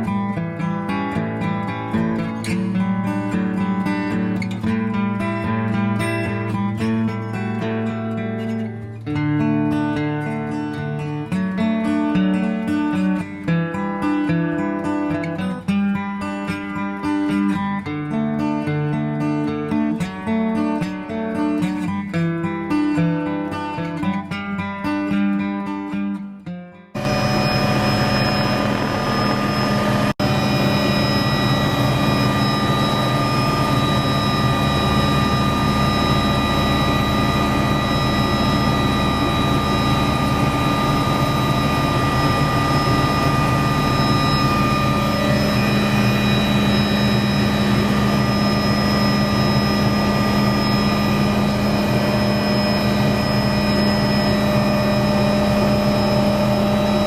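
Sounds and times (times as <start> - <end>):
steady engine drone: 27.0 - 57.0.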